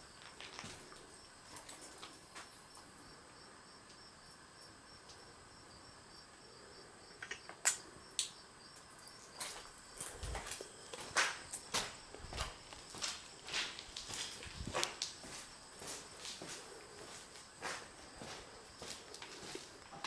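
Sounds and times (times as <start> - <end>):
insects trilling: 0.0 - 20.0
footsteps: 0.1 - 2.6, 9.3 - 20.0.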